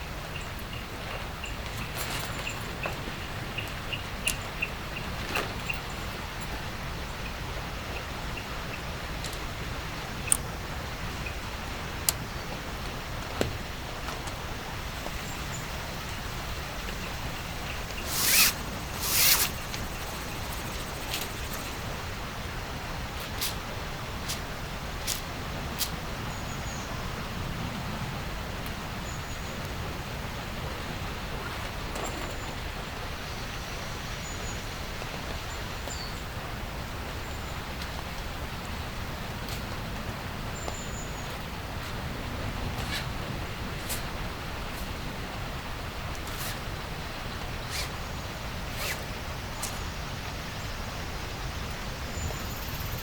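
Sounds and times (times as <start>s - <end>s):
zipper pulled: 17.9s - 21.7s, 47.7s - 48.0s, 48.7s - 49.8s.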